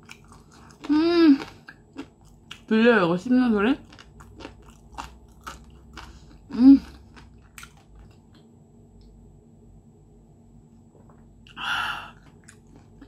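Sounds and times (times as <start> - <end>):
crunching and chewing: 0.0 - 2.7, 3.7 - 9.1, 10.9 - 13.0.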